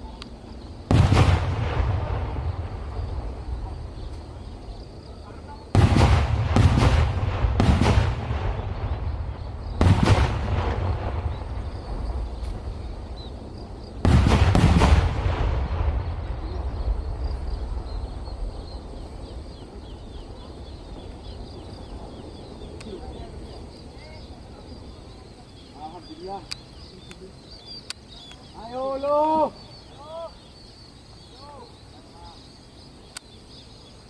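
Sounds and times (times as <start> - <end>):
firecracker blasts: 0.0 - 25.5
echoing rumble: 0.8 - 25.5.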